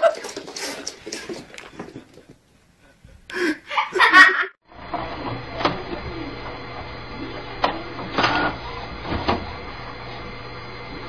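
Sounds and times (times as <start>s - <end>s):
small machine humming: 4.7s - 11.0s.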